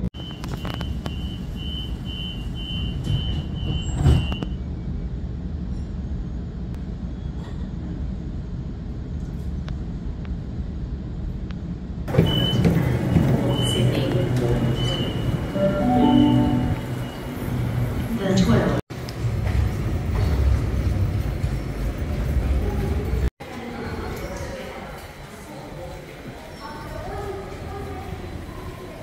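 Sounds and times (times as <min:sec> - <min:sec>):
busy station noise: 0:00.0 - 0:09.1, 0:11.8 - 0:29.0
train carriage hum: 0:00.0 - 0:29.0
door warning beeps: 0:00.2 - 0:04.4, 0:12.2 - 0:12.8, 0:13.5 - 0:17.3.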